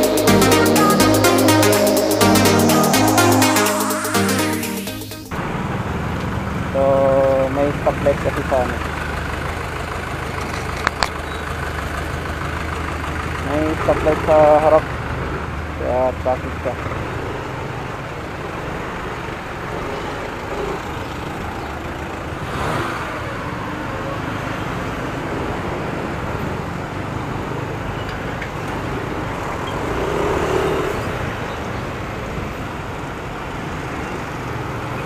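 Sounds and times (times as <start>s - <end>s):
city traffic: 0.0s - 35.0s
scooter engine: 5.5s - 16.0s, 16.8s - 27.9s, 28.5s - 35.0s.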